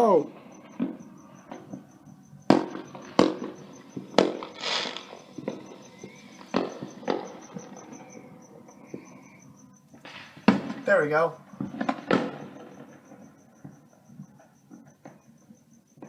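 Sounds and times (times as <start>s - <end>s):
fireworks bangs: 0.0s - 15.3s
fireworks crackling hiss: 2.5s - 8.0s, 9.9s - 12.9s.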